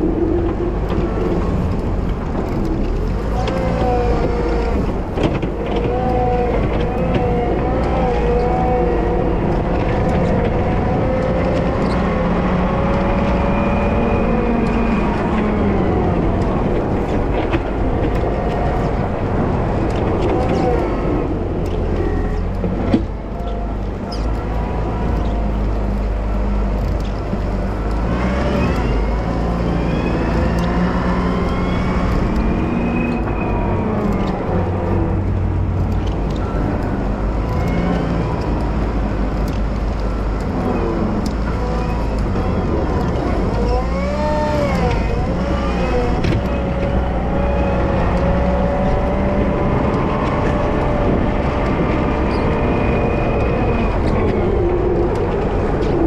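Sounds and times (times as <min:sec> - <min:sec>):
diesel engine revving under load: 0:00.0 - 0:56.0.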